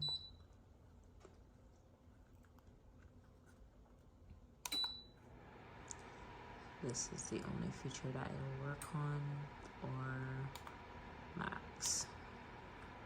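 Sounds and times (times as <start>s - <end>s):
heater control panel beeping: 0.0s - 0.4s, 4.6s - 5.2s, 5.8s - 13.0s.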